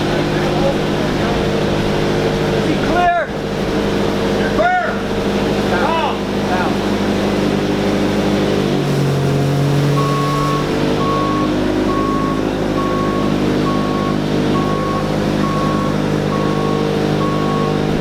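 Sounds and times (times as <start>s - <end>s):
vehicle engine running: 0.0s - 18.0s
reversing alarm beeping: 9.2s - 18.0s.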